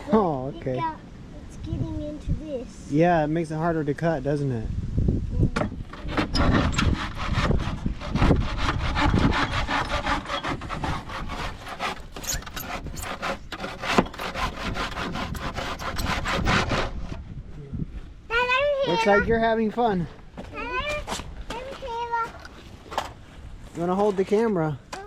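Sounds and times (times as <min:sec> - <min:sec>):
hand saw cutting wood: 0:05.8 - 0:17.2.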